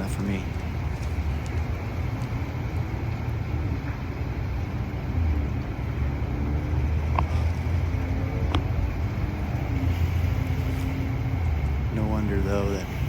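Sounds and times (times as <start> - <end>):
passing traffic: 0.0 - 13.0
wind rumble: 0.0 - 13.0
faint clicks: 0.2 - 4.0.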